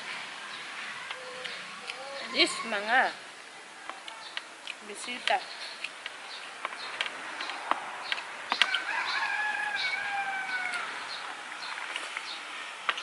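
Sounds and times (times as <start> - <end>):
rooster crowing: 8.6 - 11.2.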